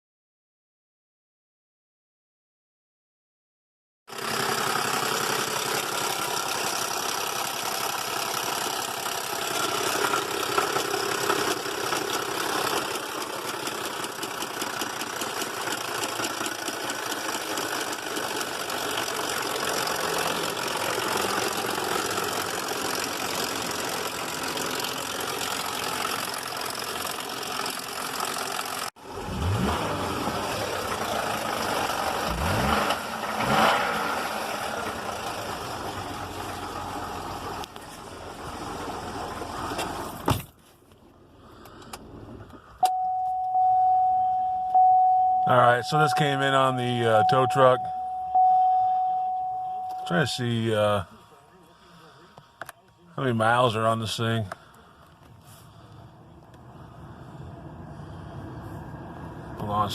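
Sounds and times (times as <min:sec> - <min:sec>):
engine knocking: 0:04.1 - 0:28.9
engine revving: 0:04.1 - 0:37.8
car engine idling with clatter: 0:04.1 - 0:59.9.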